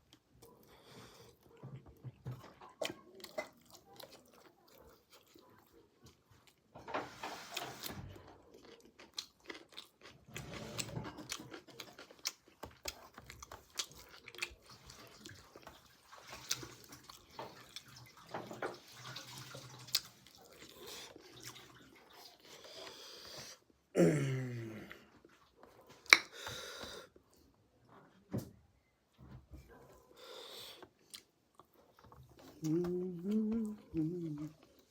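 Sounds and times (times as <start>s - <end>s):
person chewing with wet smacks: 0.0s - 6.6s, 8.3s - 23.7s, 25.1s - 26.5s, 30.6s - 34.9s.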